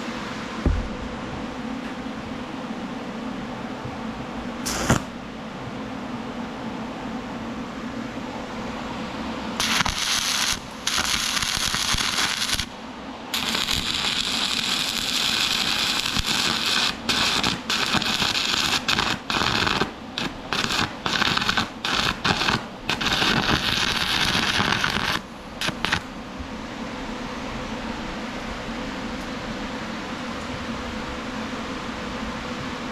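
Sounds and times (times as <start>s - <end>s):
welder arc crackling on steel: 4.6s - 5.2s, 9.6s - 12.7s, 13.4s - 26.1s.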